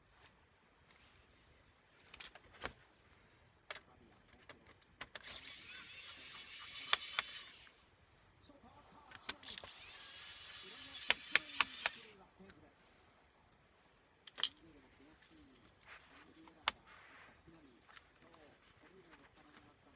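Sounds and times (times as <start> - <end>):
electric screwdriver whirring: 5.1 - 7.8, 9.4 - 12.1.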